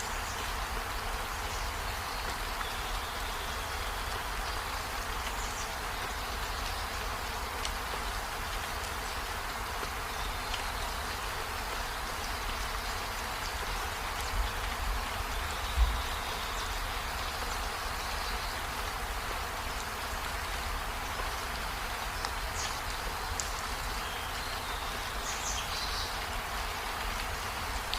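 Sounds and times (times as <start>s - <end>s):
rain on leaves and window: 0.0s - 27.9s.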